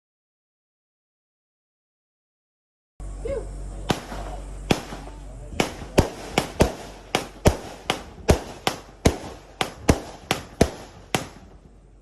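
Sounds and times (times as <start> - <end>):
fireworks shots: 3.8 - 12.0.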